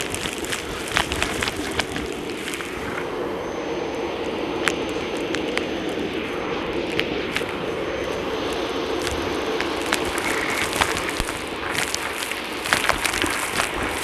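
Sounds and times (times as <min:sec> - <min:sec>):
debris clicking through vacuum: 0:00.0 - 0:03.1, 0:08.5 - 0:14.0
upright vacuum running with whine: 0:00.0 - 0:14.0.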